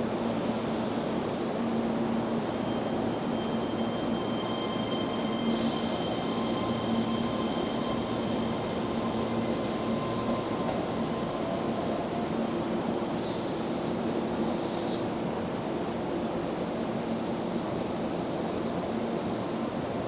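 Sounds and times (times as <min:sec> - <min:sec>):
electric train arriving: 0:00.0 - 0:20.0
air brake hiss: 0:05.4 - 0:07.1.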